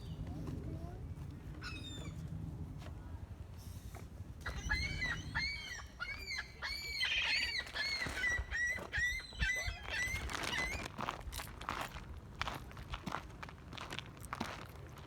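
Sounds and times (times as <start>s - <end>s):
birds calling: 4.4s - 10.8s.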